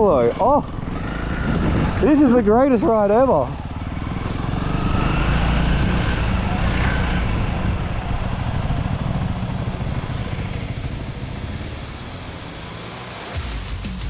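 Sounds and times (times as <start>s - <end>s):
dirt bike engine running: 0.0s - 14.0s.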